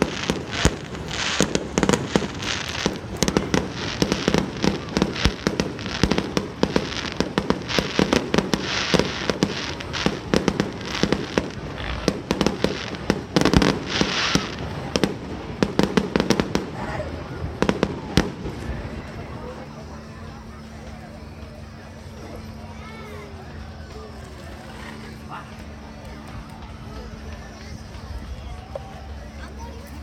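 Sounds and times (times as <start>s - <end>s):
fireworks bangs and crackling: 0.0s - 22.6s.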